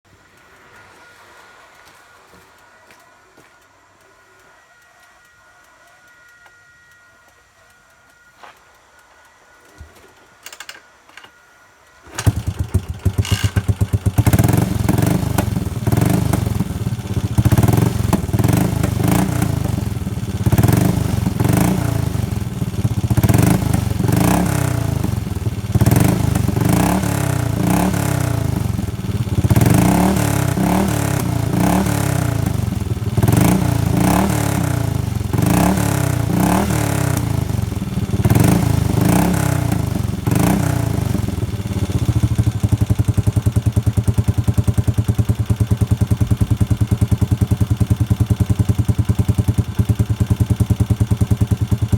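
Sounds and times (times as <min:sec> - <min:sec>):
motorcycle engine starting: 0:12.0 - 0:51.9
motorcycle engine revving: 0:12.1 - 0:51.9.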